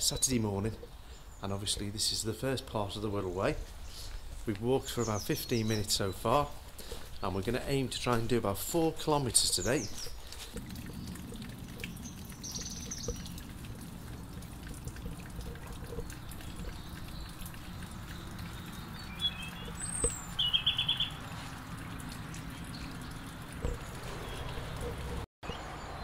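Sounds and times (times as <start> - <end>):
songbirds chirping: 0.0 - 26.0
bird trill: 18.4 - 21.2.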